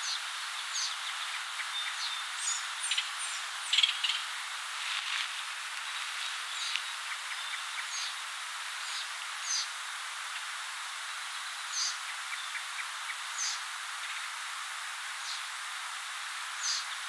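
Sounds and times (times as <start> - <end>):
steady outdoor hiss: 0.0 - 17.0
faint soft ticks: 6.6 - 6.9.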